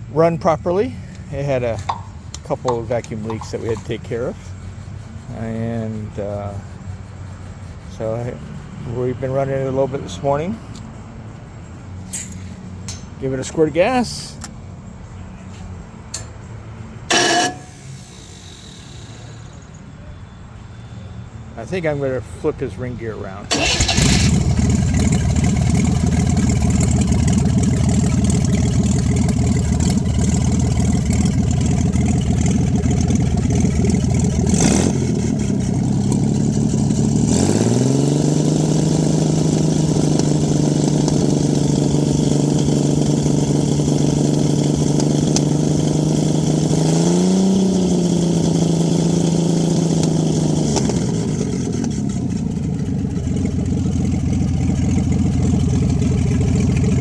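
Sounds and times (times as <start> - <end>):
car engine idling and revving: 0.0 - 19.8, 22.9 - 57.0.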